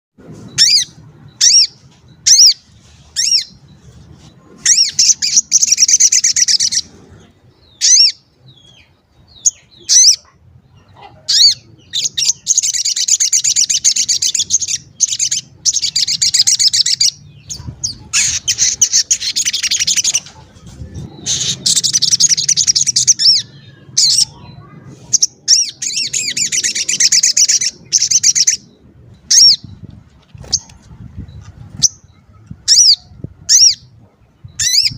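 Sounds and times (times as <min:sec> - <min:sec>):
sharp high bird chirps: 0:00.5 - 0:06.9, 0:11.3 - 0:20.3, 0:21.2 - 0:30.7
rapid chattering birdsong: 0:00.5 - 0:34.9.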